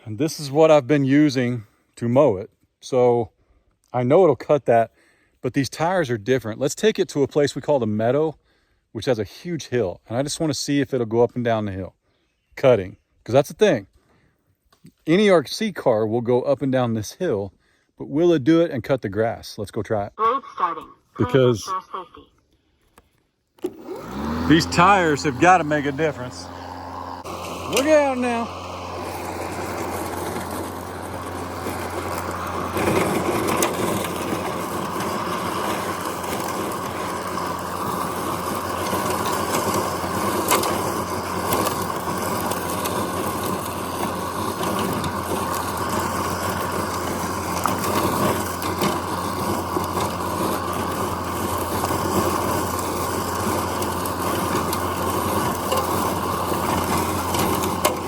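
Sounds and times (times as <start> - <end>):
electric mower humming and whirring: 23.6 - 58.0.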